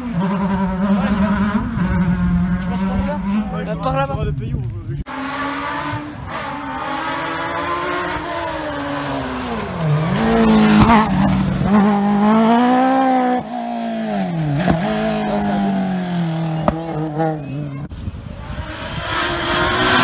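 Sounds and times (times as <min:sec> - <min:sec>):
rally car engine revving: 0:00.0 - 0:04.3, 0:05.0 - 0:20.0.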